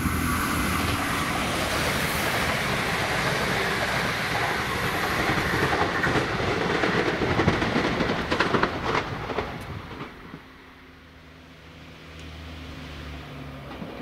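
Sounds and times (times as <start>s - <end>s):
passenger train passing at speed: 0.0s - 14.0s
wheels clattering over track: 1.8s - 10.5s.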